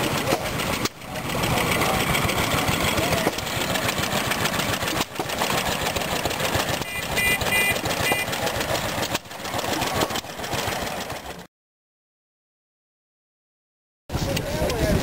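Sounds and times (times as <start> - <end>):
stationary gas engines chattering: 0.0 - 11.5
short high beeps: 6.8 - 8.3.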